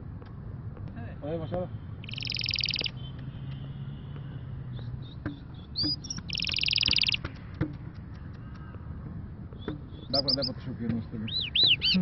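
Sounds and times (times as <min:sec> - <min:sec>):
bird chirping and trilling: 0:01.9 - 0:03.8, 0:04.7 - 0:08.6, 0:09.5 - 0:12.0.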